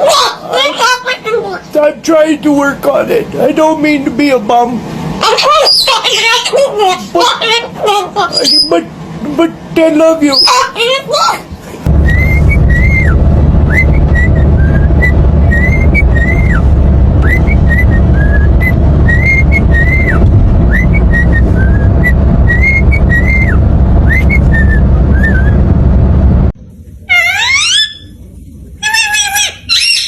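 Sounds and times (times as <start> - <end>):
loud steady low rumble: 11.8 - 27.1
whistled notes: 12.0 - 25.7.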